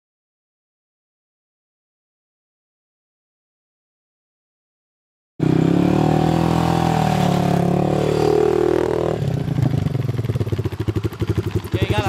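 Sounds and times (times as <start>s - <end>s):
atv engine revving and idling: 5.4s - 12.0s.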